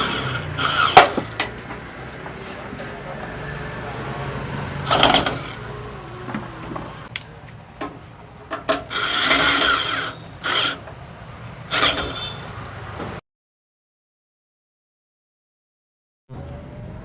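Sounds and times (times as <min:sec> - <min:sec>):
scraping and rubbing on metal parts: 0:00.0 - 0:03.5, 0:04.6 - 0:07.1, 0:07.7 - 0:13.2.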